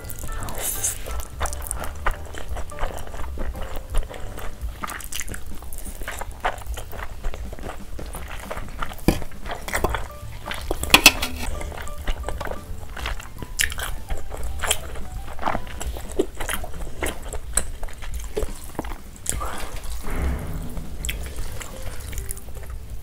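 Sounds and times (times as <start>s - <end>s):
wet chewing and smacking: 0.0s - 20.1s.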